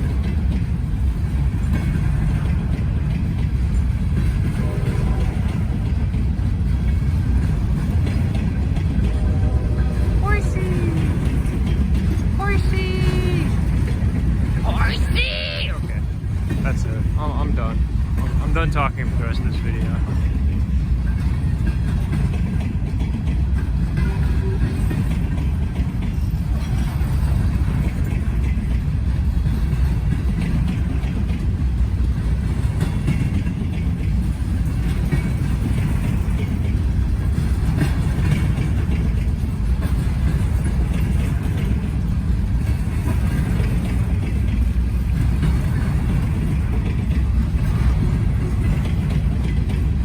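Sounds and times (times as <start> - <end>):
freight train rumbling by: 0.0 - 50.0.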